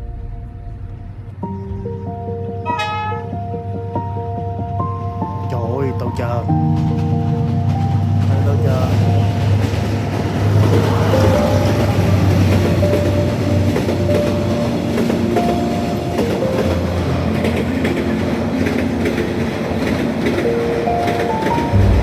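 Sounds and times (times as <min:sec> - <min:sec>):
train rumbling on rails: 0:00.0 - 0:22.0
rail joints clicking: 0:05.5 - 0:22.0.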